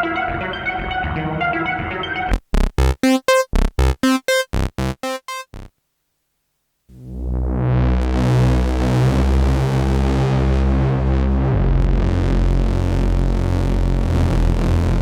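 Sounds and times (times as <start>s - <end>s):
synthesizer short pitched notes: 0.1s - 5.7s.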